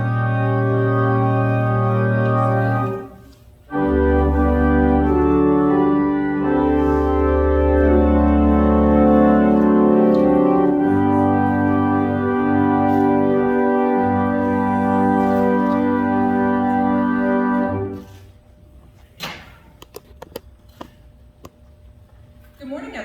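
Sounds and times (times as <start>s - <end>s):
organ chords over held bass: 0.0s - 18.3s.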